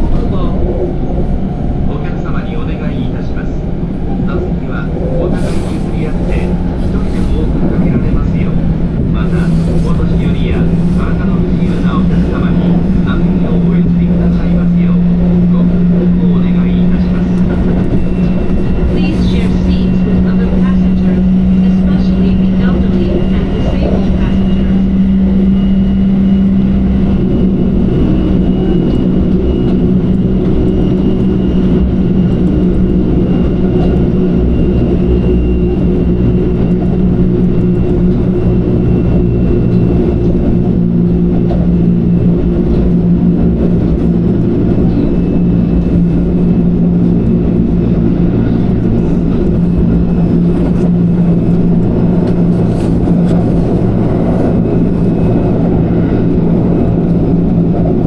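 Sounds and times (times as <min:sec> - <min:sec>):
train motor hum: 0:00.0 - 0:58.0
wheels rumbling on rail: 0:00.0 - 0:58.0.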